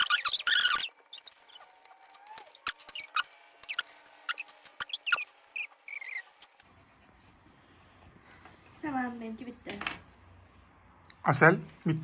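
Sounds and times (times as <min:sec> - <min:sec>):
drawing tools scratching paper: 0:00.0 - 0:09.0.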